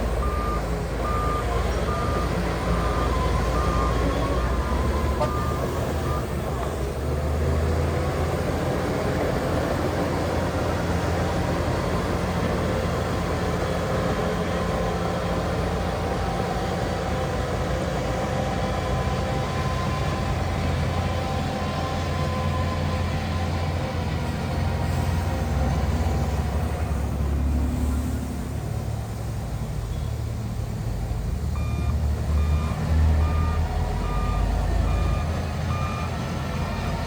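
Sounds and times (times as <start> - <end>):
heavy diesel engine droning: 0.0 - 37.0.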